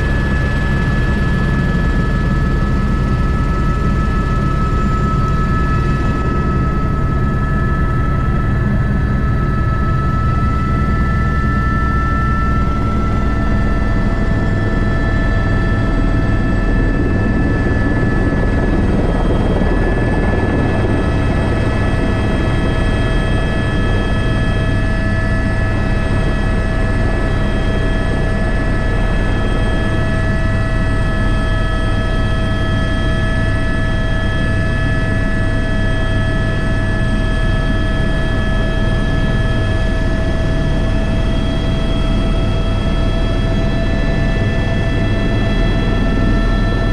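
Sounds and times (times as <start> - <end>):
helicopter rotor beat: 0.0 - 46.9
helicopter turbine whine: 0.0 - 46.9.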